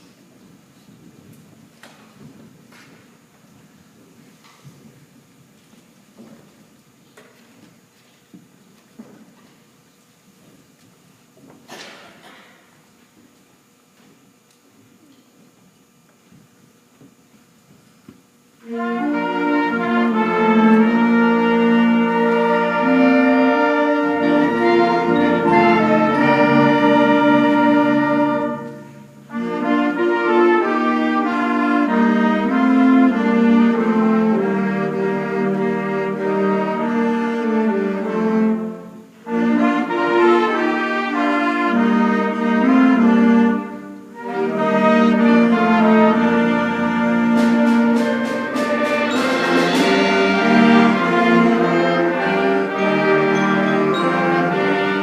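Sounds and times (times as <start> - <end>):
concert band playing held chords: 18.7 - 36.9, 44.2 - 55.0.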